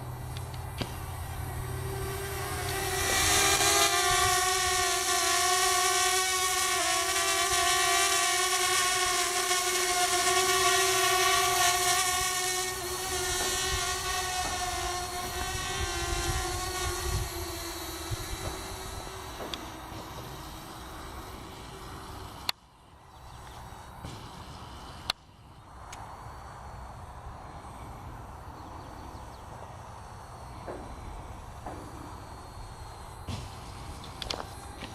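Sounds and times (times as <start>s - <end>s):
drone propellers whining: 0.0s - 22.6s, 27.6s - 34.9s
wind rumble on microphone: 13.1s - 20.2s.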